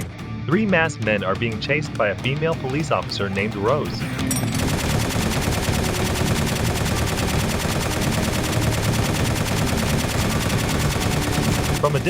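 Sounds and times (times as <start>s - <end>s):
automatic gunfire: 2.6s - 12.0s.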